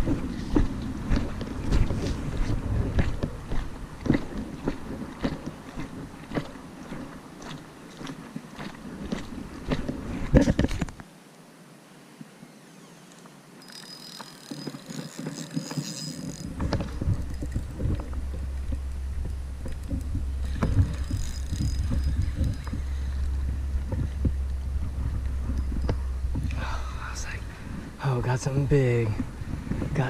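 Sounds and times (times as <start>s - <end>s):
wind rumbling on microphone: 0.0s - 11.0s, 14.1s - 30.0s
faint high buzz: 11.1s - 29.0s.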